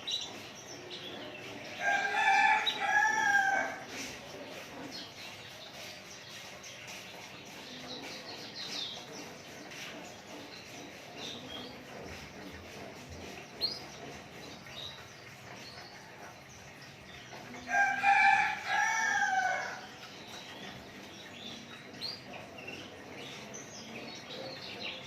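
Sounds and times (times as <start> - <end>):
small birds chirping: 0.0 - 25.0
rooster crowing: 1.8 - 3.8, 17.7 - 19.8.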